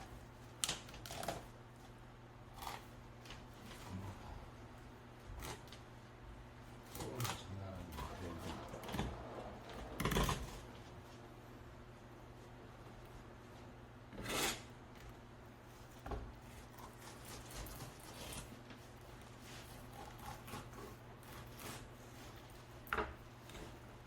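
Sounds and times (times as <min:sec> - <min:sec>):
steady low hum: 0:00.0 - 0:24.0
knife scraping fish: 0:14.1 - 0:14.7, 0:16.6 - 0:18.6, 0:19.3 - 0:22.6.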